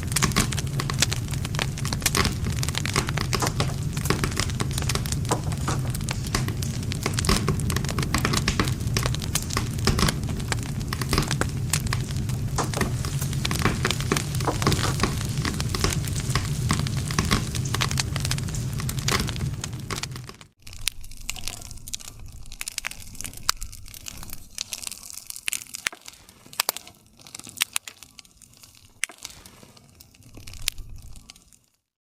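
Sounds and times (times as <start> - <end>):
low rumble: 0.0 - 24.6
campfire crackling and snapping: 0.0 - 31.9.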